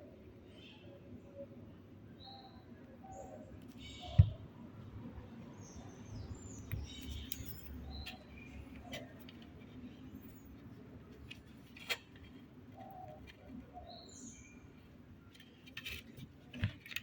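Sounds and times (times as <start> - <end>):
sharp thump: 4.2 - 4.4.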